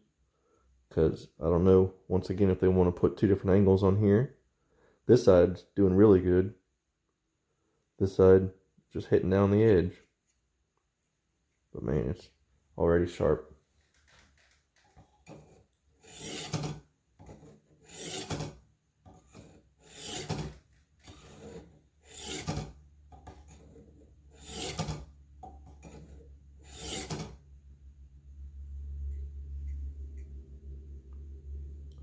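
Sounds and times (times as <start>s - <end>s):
knife scraping on sharpener rods: 15.1s - 27.4s
low hum: 27.4s - 32.0s.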